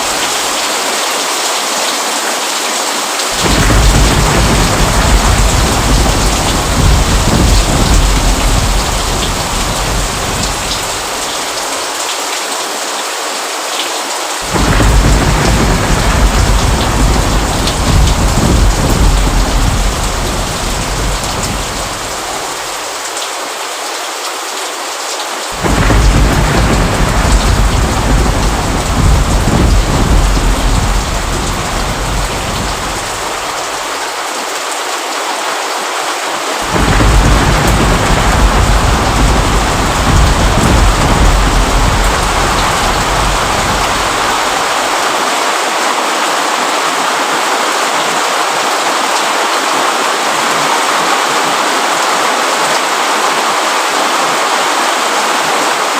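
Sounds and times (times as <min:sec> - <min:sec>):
steady rain: 0:00.0 - 0:55.9
thunder rolling: 0:03.4 - 0:11.6, 0:14.4 - 0:22.8, 0:25.6 - 0:33.9, 0:36.6 - 0:45.0.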